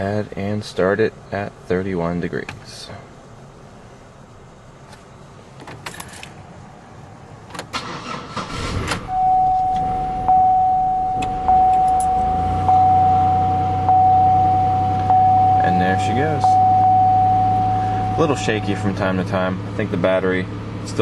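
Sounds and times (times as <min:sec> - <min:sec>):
car engine cranking and idling: 0:00.0 - 0:21.0
keys jangling: 0:05.7 - 0:06.4
warning chime dinging: 0:09.1 - 0:19.1.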